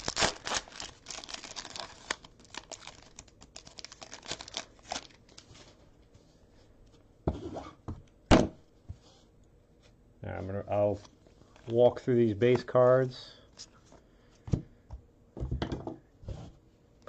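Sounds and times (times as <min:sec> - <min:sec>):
plastic wrapper tearing and crinkling: 0:00.0 - 0:05.5.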